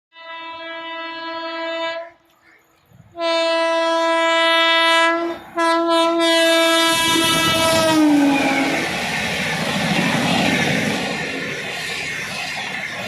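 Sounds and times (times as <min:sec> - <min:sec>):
train horn blast: 0:00.1 - 0:02.2, 0:03.1 - 0:08.8
train rumbling and clattering by: 0:02.2 - 0:13.0.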